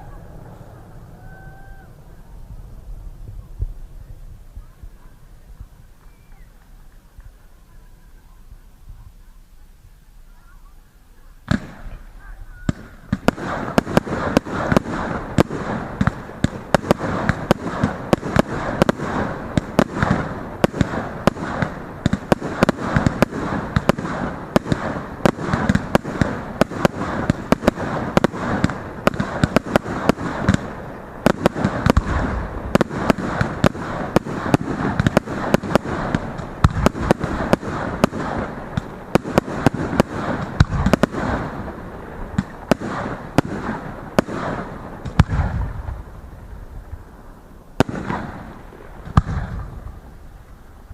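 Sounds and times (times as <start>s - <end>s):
fireworks crackling: 0.0s - 50.9s
fireworks sharp bangs: 11.4s - 50.9s.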